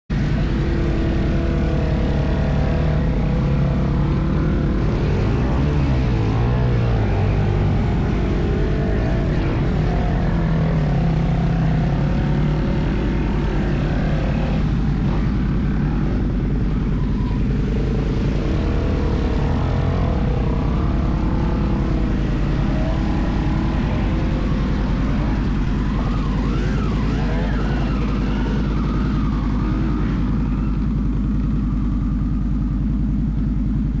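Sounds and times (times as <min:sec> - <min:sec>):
off-road vehicle engine revving: 0:00.1 - 0:34.0.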